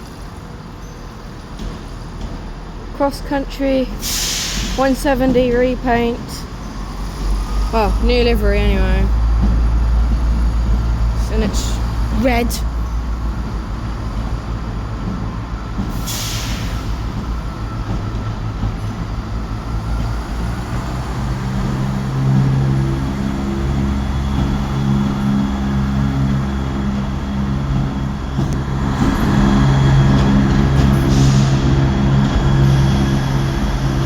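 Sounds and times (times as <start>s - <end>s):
diesel train engines droning: 0.0s - 34.0s
air hiss: 4.0s - 4.9s, 16.0s - 17.2s.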